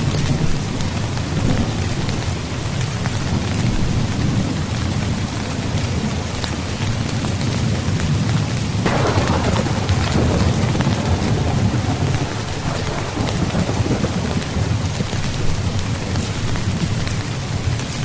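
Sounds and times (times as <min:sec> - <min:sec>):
rain drumming on a tent: 0:00.0 - 0:18.0
loud rush: 0:08.9 - 0:15.6.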